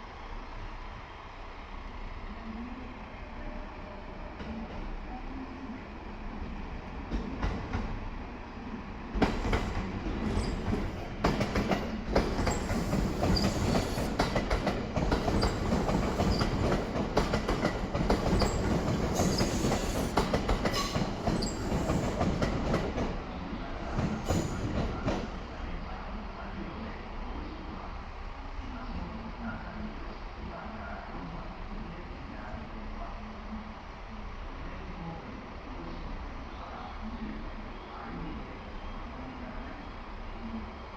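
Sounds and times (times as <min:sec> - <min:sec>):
train wheels clicking over rail joints: 0:09.2 - 0:23.2.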